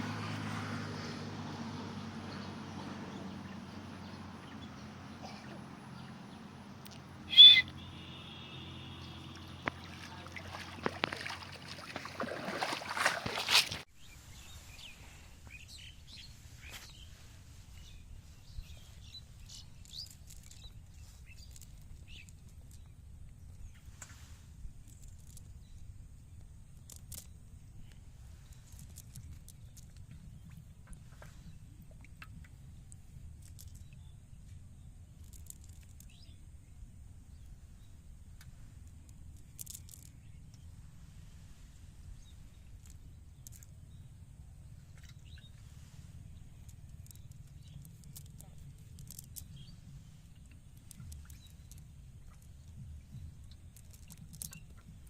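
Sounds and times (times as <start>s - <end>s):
birds chirping: 1.9s - 13.8s
loud sharp bird call: 7.2s - 10.0s.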